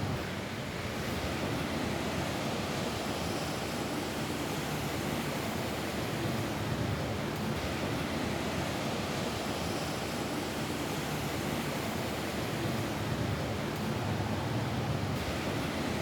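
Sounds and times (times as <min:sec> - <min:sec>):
rain on a roof: 0:03.9 - 0:16.0.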